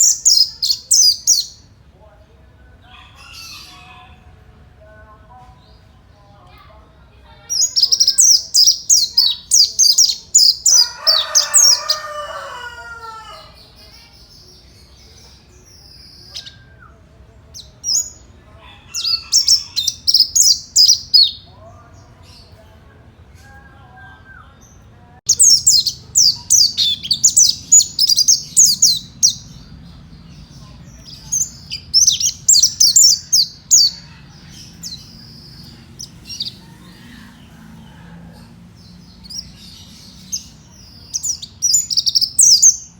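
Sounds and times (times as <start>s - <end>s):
high-pitched bird twittering song: 0.0s - 1.7s, 7.5s - 13.2s, 13.8s - 16.8s, 17.5s - 21.5s, 24.3s - 36.6s, 38.8s - 42.9s.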